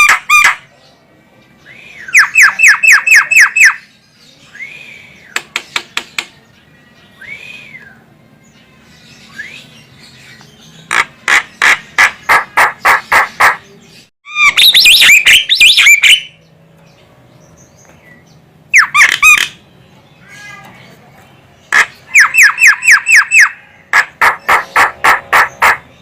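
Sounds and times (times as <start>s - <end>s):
bird calling harsh notes: 1.7s - 4.0s, 10.8s - 16.4s, 18.7s - 20.6s, 21.6s - 26.0s.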